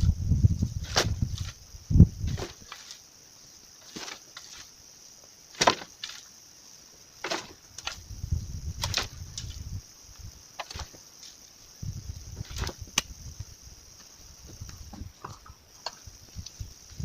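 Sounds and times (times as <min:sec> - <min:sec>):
rustling and scraping in soil: 0:00.0 - 0:17.0
hand tool chopping roots: 0:05.6 - 0:05.9, 0:07.2 - 0:08.0.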